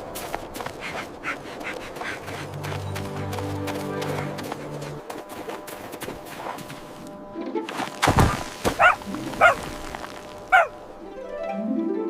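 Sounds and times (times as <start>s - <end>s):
background music: 0.0s - 5.7s, 10.5s - 12.0s
cartoon dog barking: 8.8s - 9.6s, 10.5s - 10.8s.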